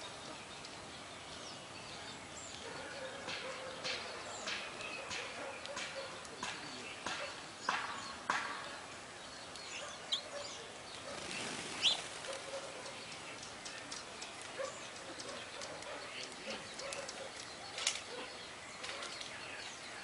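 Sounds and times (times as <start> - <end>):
songbirds chirping and calling: 0.0 - 20.0.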